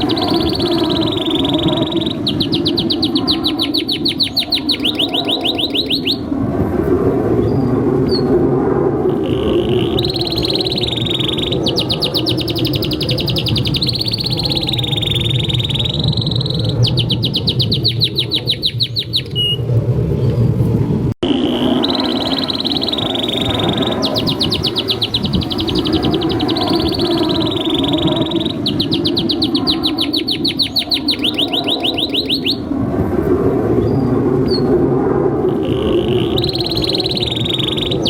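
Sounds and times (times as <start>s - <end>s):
canary singing trills: 0.0s - 6.3s, 9.1s - 19.6s, 21.2s - 32.7s, 35.5s - 38.0s.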